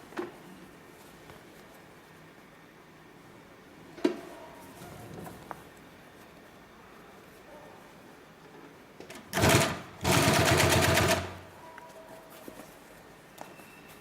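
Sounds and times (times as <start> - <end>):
sewing machine stitching: 9.1 - 11.4.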